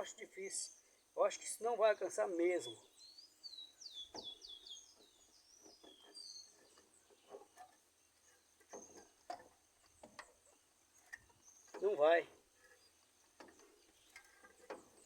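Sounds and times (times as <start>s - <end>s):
high bird chirps: 2.6s - 7.4s.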